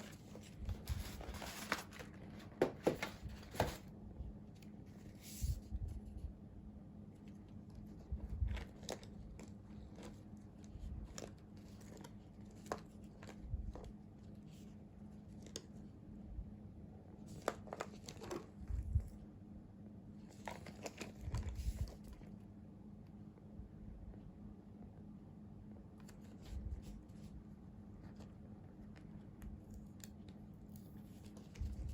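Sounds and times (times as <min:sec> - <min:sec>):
wrapping crinkling and tearing: 0:00.0 - 0:03.8, 0:08.1 - 0:13.4.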